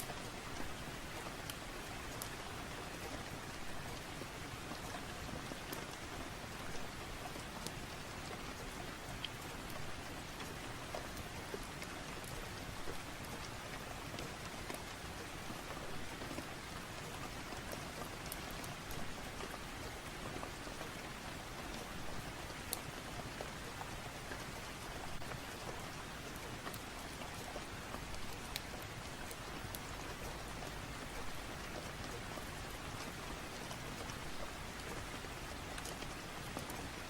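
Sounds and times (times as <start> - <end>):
steady rain falling: 0.0 - 37.0
fireplace crackles: 22.6 - 37.0.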